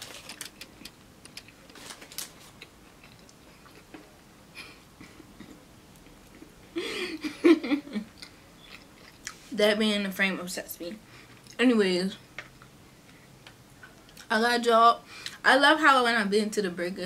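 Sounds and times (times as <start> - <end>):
person chewing food: 0.0 - 4.2, 8.2 - 9.4
person humming or laughing: 6.7 - 8.1.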